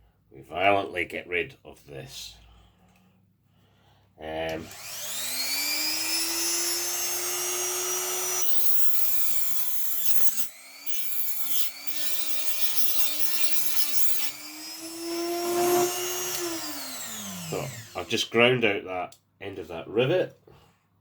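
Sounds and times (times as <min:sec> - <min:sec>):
rotary tool grinding metal: 0:04.6 - 0:18.3.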